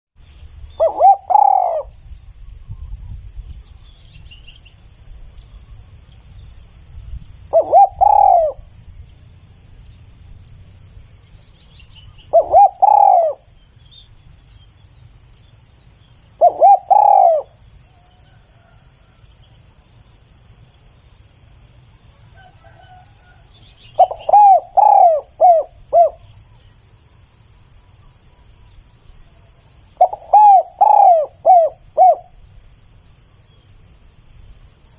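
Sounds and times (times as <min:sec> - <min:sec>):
insects trilling: 0:00.2 - 0:34.9
dove cooing: 0:00.8 - 0:02.0, 0:07.5 - 0:08.7, 0:12.3 - 0:13.5, 0:16.4 - 0:17.6, 0:24.0 - 0:26.3, 0:30.0 - 0:32.4.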